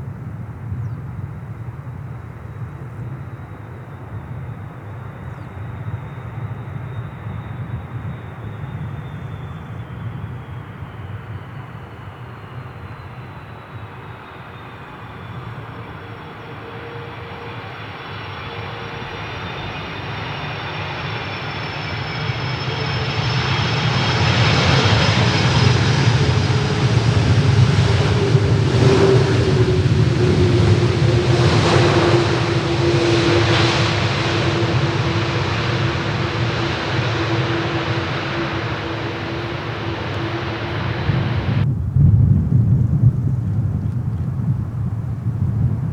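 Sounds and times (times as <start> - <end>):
jet engines whining: 4.1 - 41.7.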